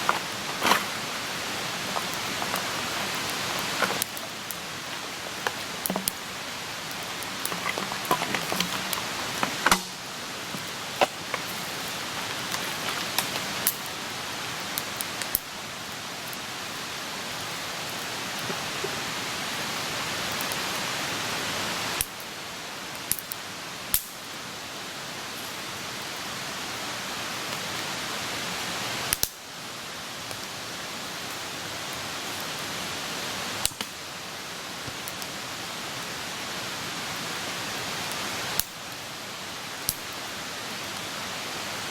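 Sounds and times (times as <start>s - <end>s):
burning wood crackling and popping: 0.0s - 41.9s
campfire flames hissing: 0.0s - 41.9s.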